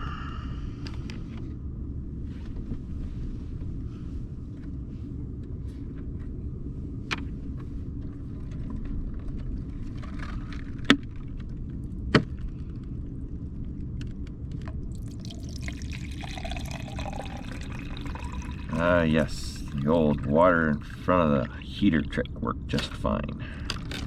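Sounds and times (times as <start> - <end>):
water pouring from jug: 14.9 - 22.4.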